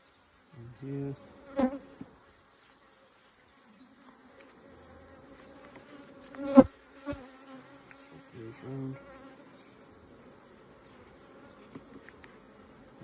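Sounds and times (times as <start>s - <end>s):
bees buzzing: 0.6s - 13.0s.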